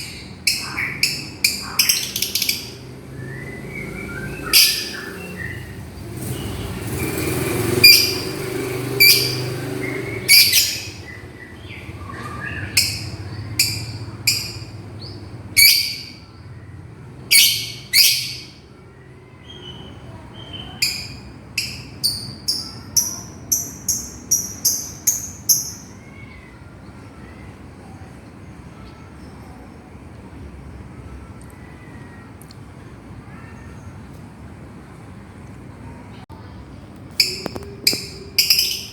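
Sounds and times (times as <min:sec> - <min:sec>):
lovebird shrill calls: 0:07.8 - 0:08.4, 0:09.0 - 0:11.0, 0:37.2 - 0:38.9.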